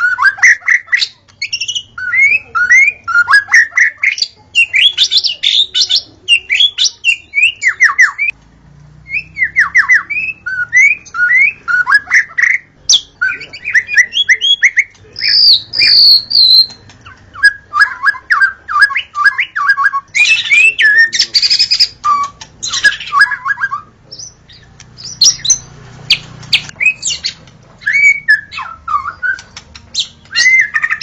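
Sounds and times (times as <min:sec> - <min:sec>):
bird singing whistled notes: 0:09.0 - 0:31.0.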